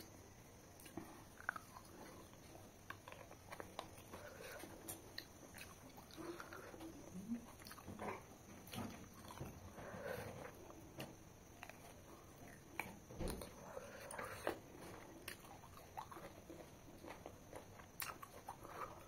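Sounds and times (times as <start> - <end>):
chewing and lip-smacking: 0.7 - 19.0.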